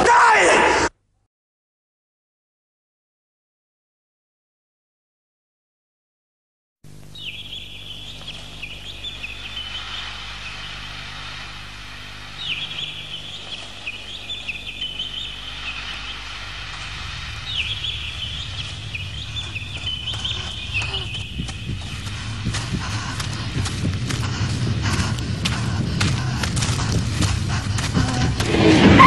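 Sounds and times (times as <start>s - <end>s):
birds twittering: 6.9s - 29.0s
low steady hum: 6.9s - 29.0s
low rumble: 8.3s - 29.0s.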